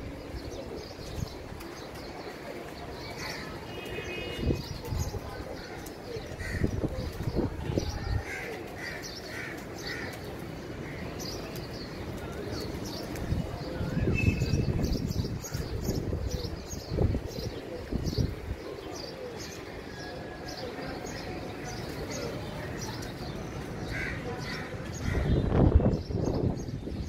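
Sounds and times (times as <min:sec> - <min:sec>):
birds harsh calls: 0:03.0 - 0:13.1, 0:14.0 - 0:26.7.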